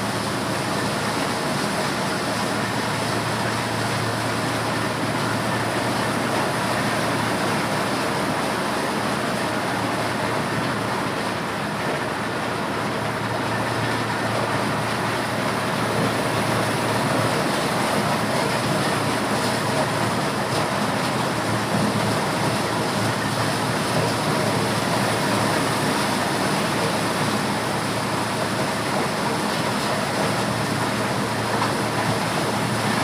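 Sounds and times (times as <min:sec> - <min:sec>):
motorised corn sheller running: 0:00.0 - 0:33.0.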